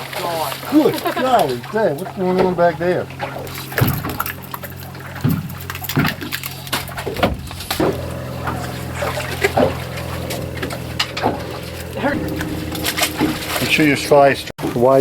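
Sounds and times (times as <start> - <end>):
boat motor humming: 0.0 - 15.0
water splashing against boat: 0.0 - 15.0.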